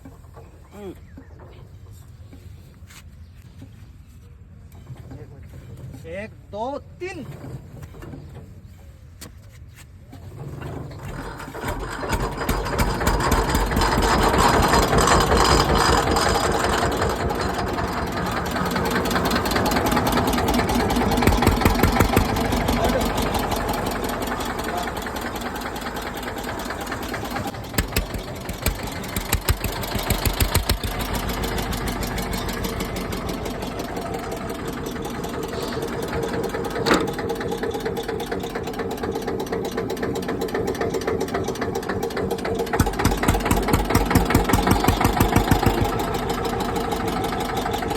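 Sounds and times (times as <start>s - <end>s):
diesel tractor engine knocking: 11.0s - 47.9s.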